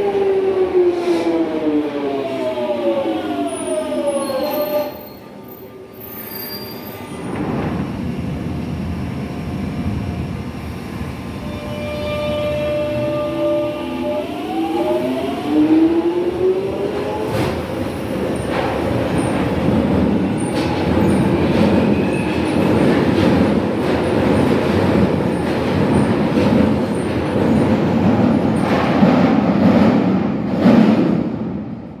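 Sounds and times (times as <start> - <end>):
train traction motor whine: 2.4 - 17.3.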